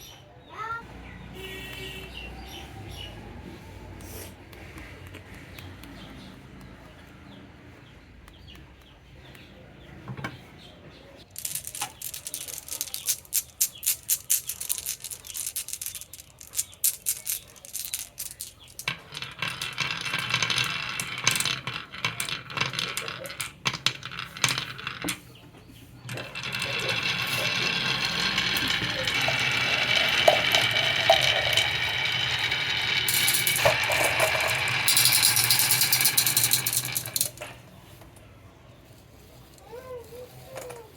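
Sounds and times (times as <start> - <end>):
marbles clattering down wooden run: 11.3 - 25.3, 26.1 - 37.5.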